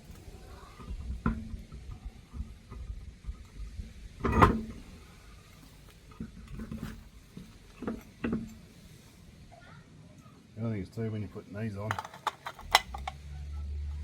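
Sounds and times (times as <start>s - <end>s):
sharp clunk of car parts: 4.2s - 4.8s, 11.9s - 13.2s.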